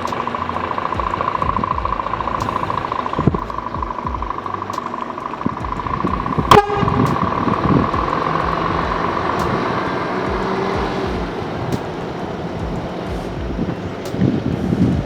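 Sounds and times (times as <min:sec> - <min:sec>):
steady high tone: 0:00.0 - 0:15.0
truck engine running: 0:00.0 - 0:15.0
truck horn toot: 0:06.4 - 0:13.5.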